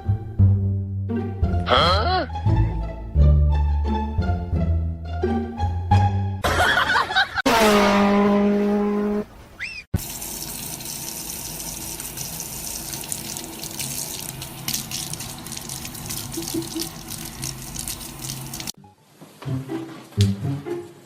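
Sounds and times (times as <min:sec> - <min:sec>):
running water: 0:09.3 - 0:18.8.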